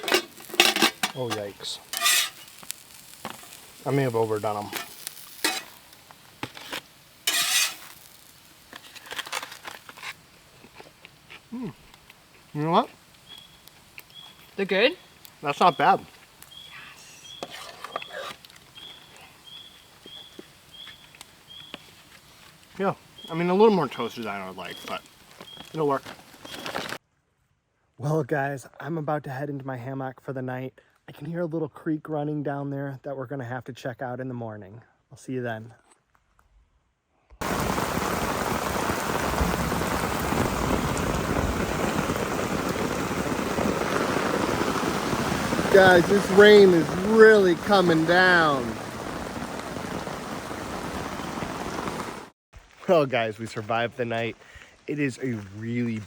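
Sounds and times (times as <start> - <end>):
heavy rain: 0.0 - 27.0, 37.4 - 52.3.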